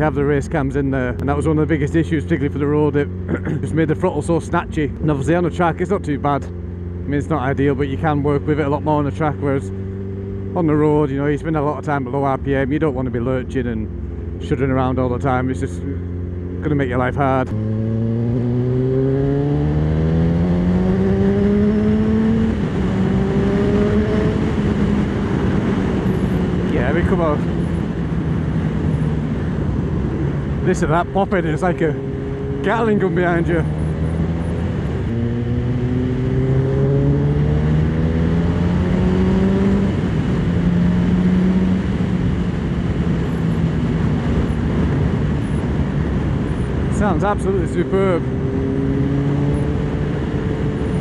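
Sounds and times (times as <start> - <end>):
motorcycle engine accelerating: 0.0 - 51.0.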